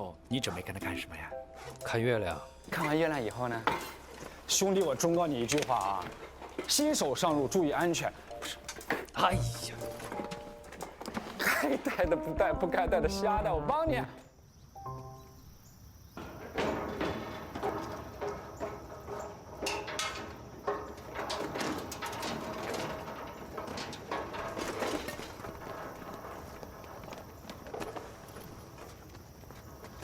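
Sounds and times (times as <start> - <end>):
pots and dishes clattering: 1.5 - 12.0, 16.2 - 26.7.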